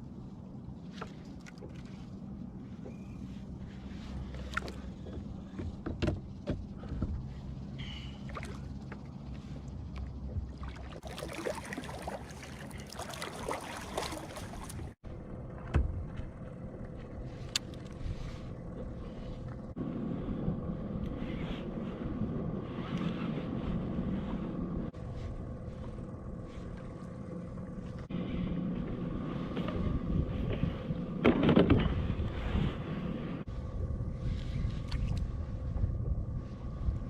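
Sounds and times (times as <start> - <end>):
faint steady hum: 0.0 - 37.0
hissing splashing water: 11.0 - 14.8.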